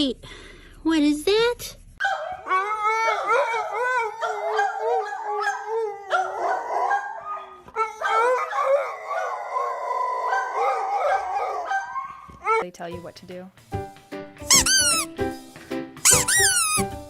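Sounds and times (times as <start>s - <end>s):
dogs howling: 2.0s - 12.6s.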